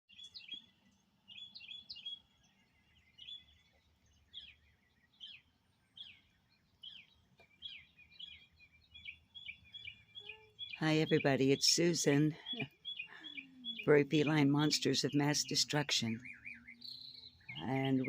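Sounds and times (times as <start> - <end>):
birds chirping faintly: 0.1 - 18.0.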